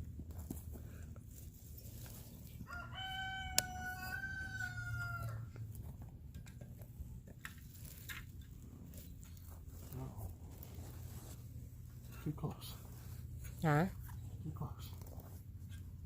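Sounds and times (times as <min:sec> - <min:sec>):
rooster crowing: 0:02.6 - 0:05.6.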